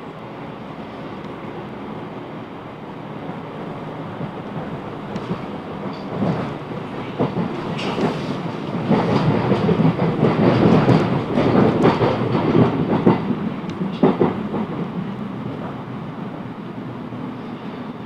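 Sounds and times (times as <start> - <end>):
train wheels rumbling on track: 0.0 - 18.0.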